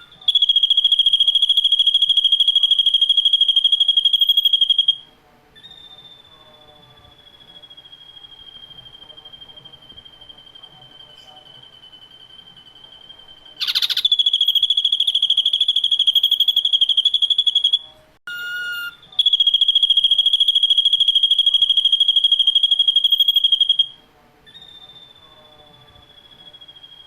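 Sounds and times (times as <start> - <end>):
bird rapid high trills: 13.6 - 17.8.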